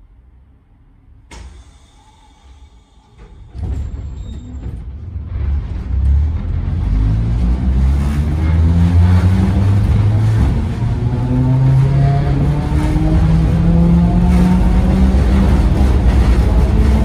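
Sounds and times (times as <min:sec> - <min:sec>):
railcar motors and wheels rumbling: 0:00.0 - 0:17.0.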